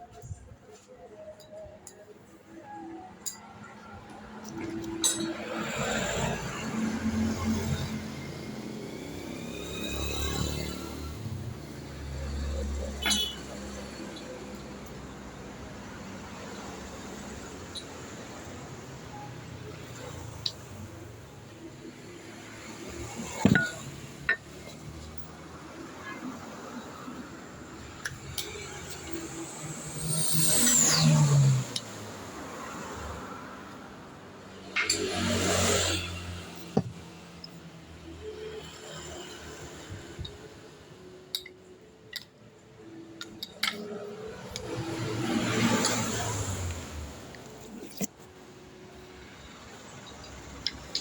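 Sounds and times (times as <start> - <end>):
engine revving with high whine: 28.5 - 32.9.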